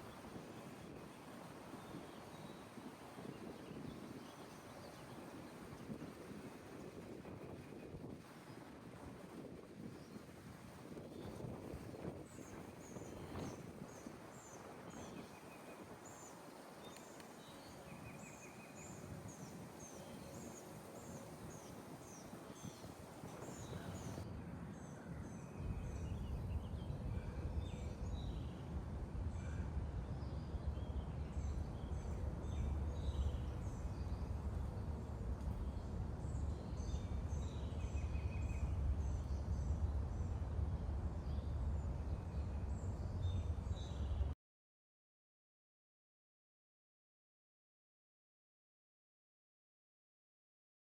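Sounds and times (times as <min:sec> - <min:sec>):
wind buffeting microphone: 0:00.0 - 0:44.3
small birds chirping: 0:12.3 - 0:24.2.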